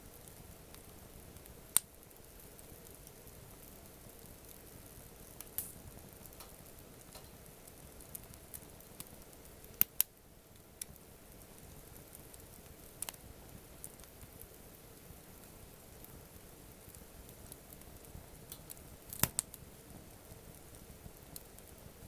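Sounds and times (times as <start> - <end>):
campfire crackling: 0.0 - 22.0
faint steady hiss: 0.0 - 22.0
sharp pops of fire: 0.1 - 22.0.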